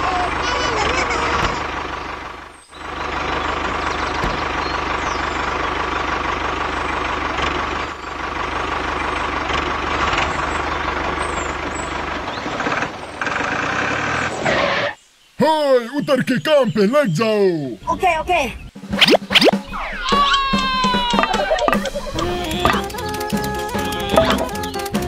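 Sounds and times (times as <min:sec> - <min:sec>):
tractor engine running: 0:00.0 - 0:14.4, 0:19.4 - 0:25.0.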